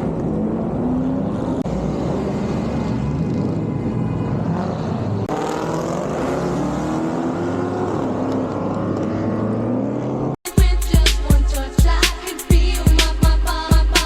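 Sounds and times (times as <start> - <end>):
car engines revving: 0.0 - 10.4.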